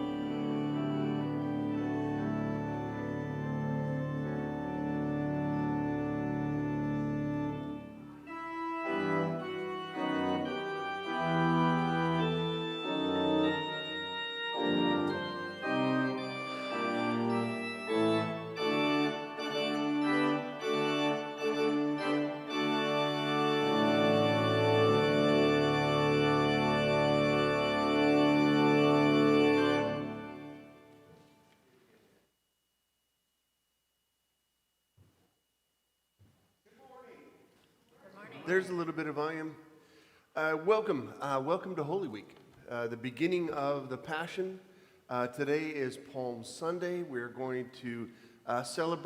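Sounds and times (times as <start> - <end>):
organ playing sustained chords: 0.0 - 31.3.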